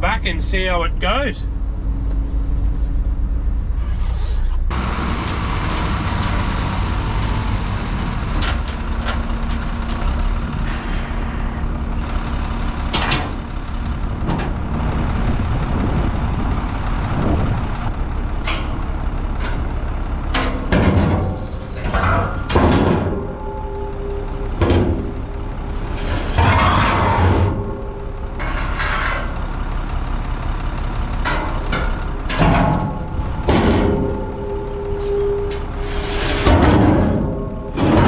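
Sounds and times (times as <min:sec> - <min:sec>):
diesel truck running: 0:00.0 - 0:38.0.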